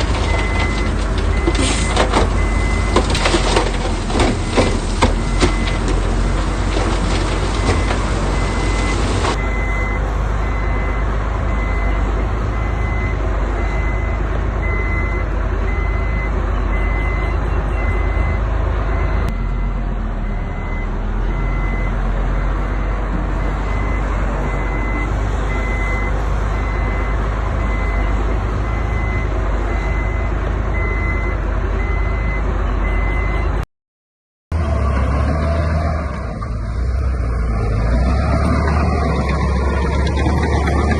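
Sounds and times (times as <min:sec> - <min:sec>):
heavy diesel machinery running: 0:00.0 - 0:33.4, 0:34.5 - 0:40.9
reversing alarm beeping: 0:07.6 - 0:33.6.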